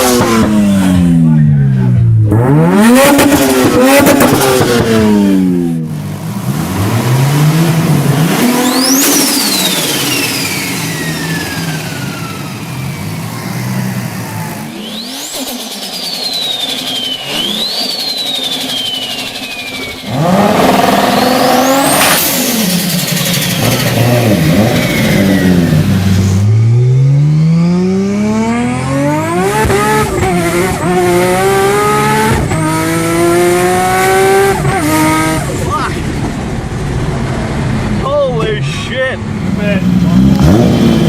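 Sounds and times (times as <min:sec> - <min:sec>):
car engine revving: 0:00.0 - 0:41.0
turbo whistle: 0:14.2 - 0:22.2.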